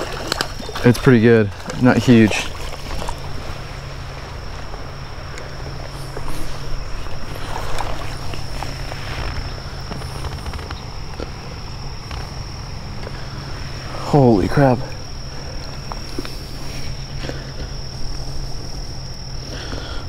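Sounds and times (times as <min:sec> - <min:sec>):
faint clicks and splashes: 0:00.0 - 0:03.6
creek water rushing: 0:00.0 - 0:10.0
high-pitched insect trill: 0:00.0 - 0:20.0.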